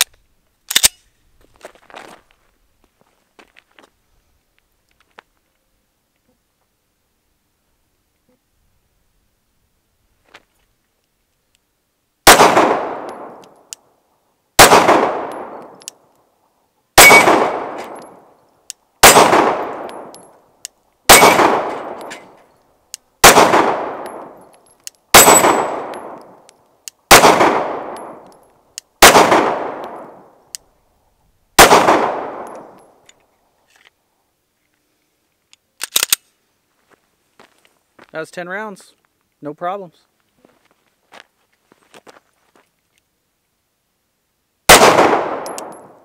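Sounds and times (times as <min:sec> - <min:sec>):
pistol shots with echo: 0:12.2 - 0:13.4, 0:14.6 - 0:15.8, 0:17.0 - 0:18.2, 0:19.0 - 0:20.2, 0:21.1 - 0:22.2, 0:23.2 - 0:24.4, 0:25.1 - 0:26.3, 0:27.1 - 0:28.2, 0:29.0 - 0:30.3, 0:31.6 - 0:32.8, 0:44.7 - 0:46.0.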